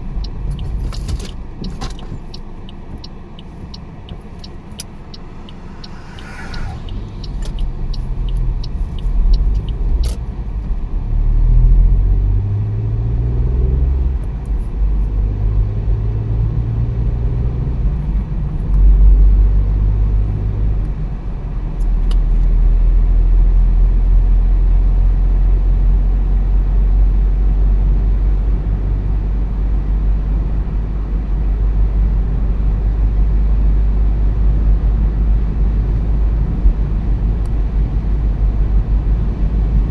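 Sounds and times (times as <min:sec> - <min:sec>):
car engine accelerating: 0:00.0 - 0:21.0
road rumble: 0:00.0 - 0:39.9.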